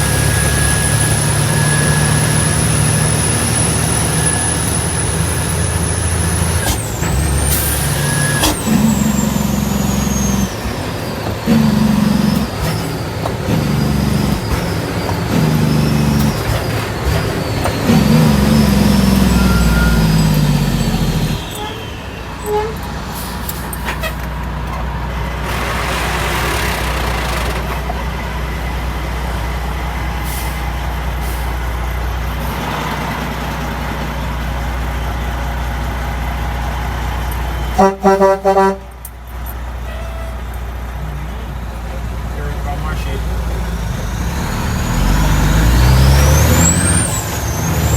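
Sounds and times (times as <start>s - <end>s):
truck diesel engine running: 0.0s - 47.9s
horn toots: 37.7s - 39.1s, 39.8s - 40.6s.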